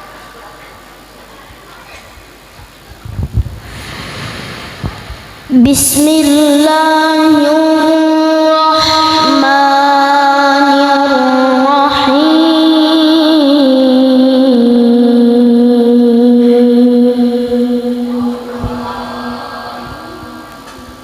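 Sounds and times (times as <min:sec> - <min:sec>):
child reciting melodically: 0:05.5 - 0:20.4.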